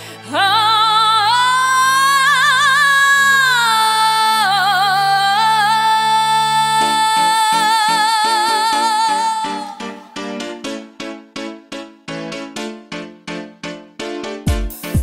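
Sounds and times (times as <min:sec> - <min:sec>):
woman singing high held note: 0:00.2 - 0:10.0
drum beat: 0:14.5 - 0:15.0.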